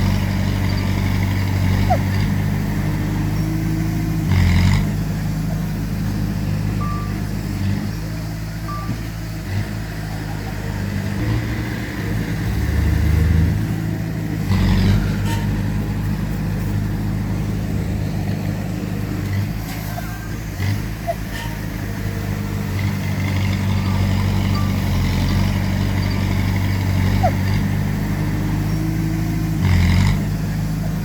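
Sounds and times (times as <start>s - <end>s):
diesel machinery engine running: 0.0s - 31.0s
short high beeps: 6.8s - 7.2s, 8.7s - 9.0s.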